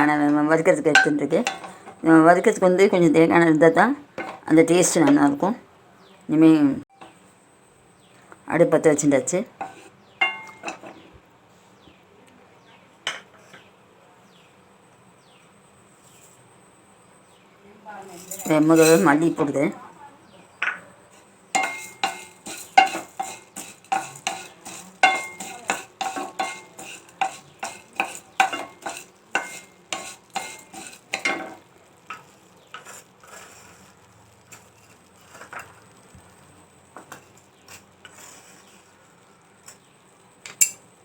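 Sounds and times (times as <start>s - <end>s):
utensil scraping a pan: 9.6s - 11.1s, 18.2s - 19.7s, 20.8s - 39.9s.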